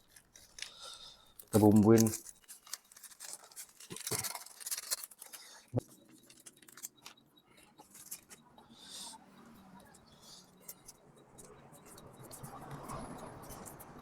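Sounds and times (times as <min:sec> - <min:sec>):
plastic sachet rustling: 0:00.0 - 0:07.2.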